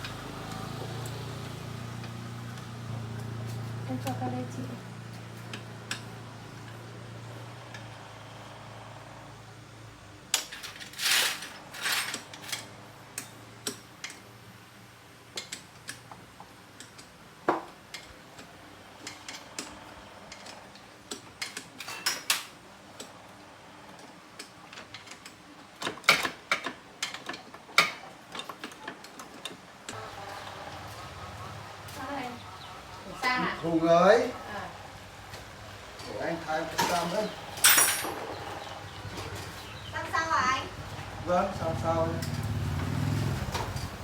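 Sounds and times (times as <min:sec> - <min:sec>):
metal tools clinking: 0:10.4 - 0:12.7, 0:36.0 - 0:38.6.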